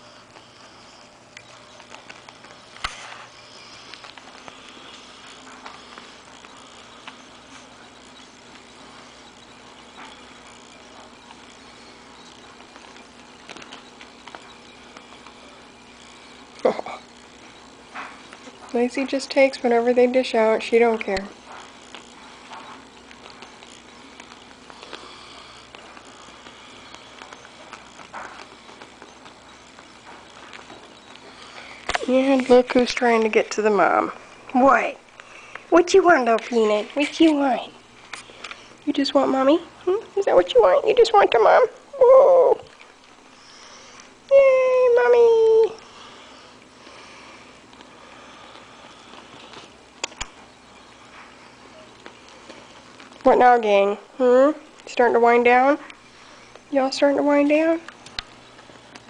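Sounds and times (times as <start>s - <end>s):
puppies snuffling and sniffing: 0.0s - 40.9s, 45.2s - 59.0s
soft rustling with light ticks: 0.0s - 41.8s, 42.6s - 59.0s
faint clicks: 47.7s - 50.5s.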